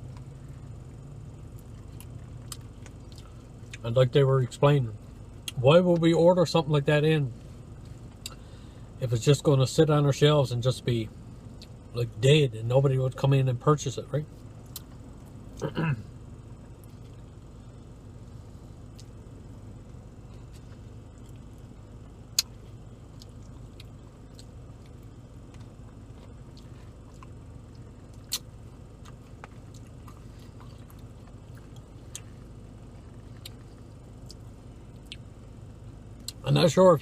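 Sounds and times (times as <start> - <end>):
soft chewing: 0.0 - 3.8, 16.4 - 36.4
low hum: 0.0 - 37.0.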